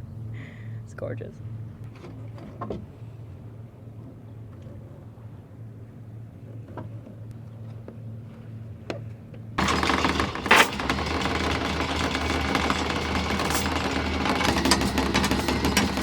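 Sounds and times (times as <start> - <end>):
boat engine humming: 9.6 - 16.0.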